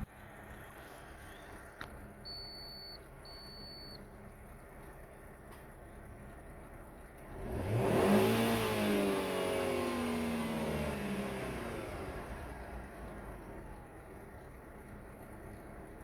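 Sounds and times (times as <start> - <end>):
car engine revving: 7.3 - 13.5.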